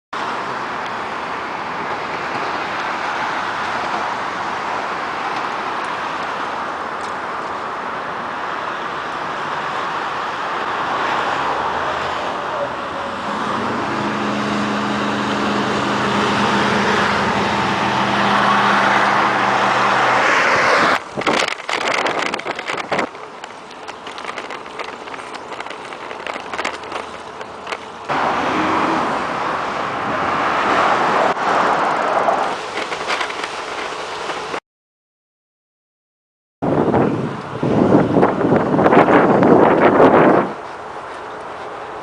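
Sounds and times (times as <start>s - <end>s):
tyres rushing on road: 0.2s - 34.6s, 36.7s - 42.0s
vehicle engine humming: 0.2s - 34.6s, 36.7s - 42.0s.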